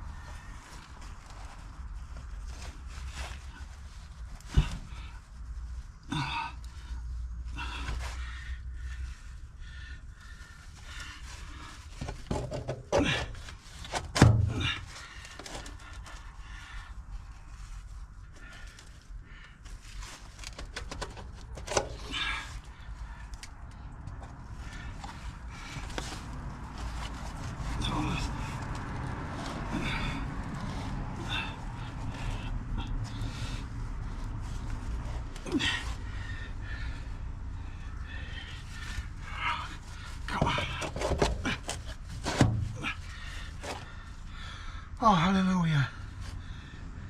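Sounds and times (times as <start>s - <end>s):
plastic pipe scraping and knocking: 12.0s - 15.9s, 40.3s - 43.0s.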